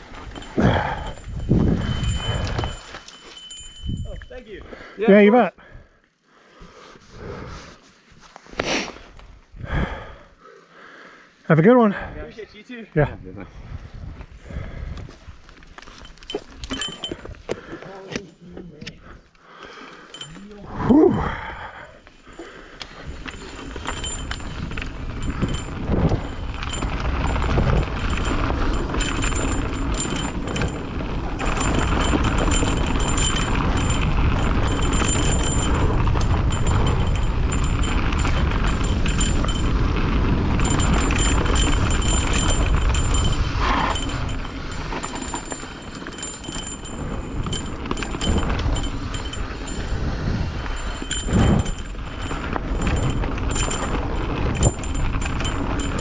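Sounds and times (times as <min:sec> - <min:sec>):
wind on microphone: 0:00.0 - 0:03.0, 0:09.4 - 0:10.2, 0:13.0 - 0:15.5, 0:20.3 - 0:56.0
bike rattling and clicking: 0:00.0 - 0:04.4, 0:14.5 - 0:56.0
bike tyres on dirt trail: 0:00.0 - 0:05.0, 0:13.5 - 0:56.0.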